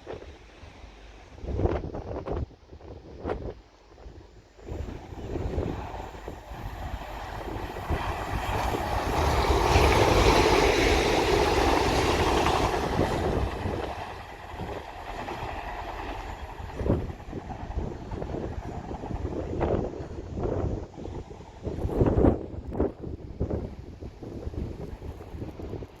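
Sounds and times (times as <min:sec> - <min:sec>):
wheel noise on rails: 0:00.1 - 0:26.0
train passing: 0:03.8 - 0:26.0.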